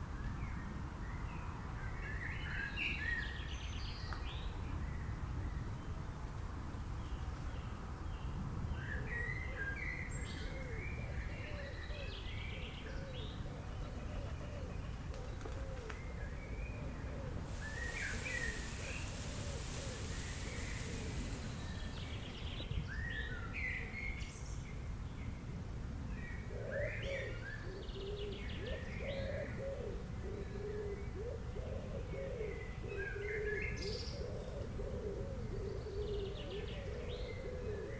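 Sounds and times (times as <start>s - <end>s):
hiss: 17.4s - 22.8s
birds chirping and calling: 17.5s - 22.8s.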